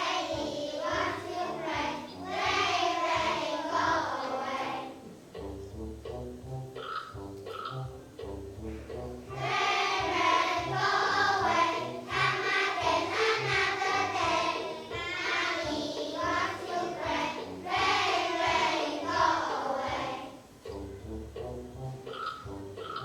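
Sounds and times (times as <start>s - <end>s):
children singing in unison: 0.0s - 5.1s, 9.3s - 20.4s.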